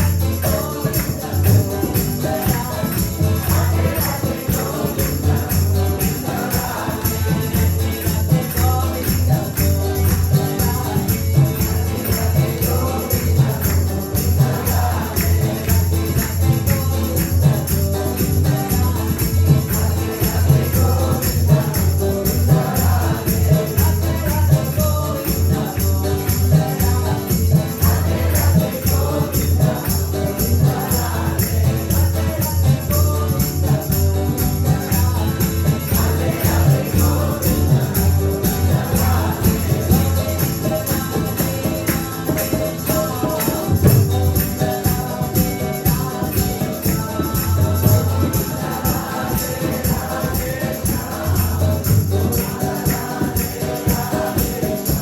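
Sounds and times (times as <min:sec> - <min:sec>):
drum beat: 0:00.0 - 0:55.0
fast jingling percussion: 0:00.0 - 0:55.0
group chanting: 0:00.0 - 0:55.0.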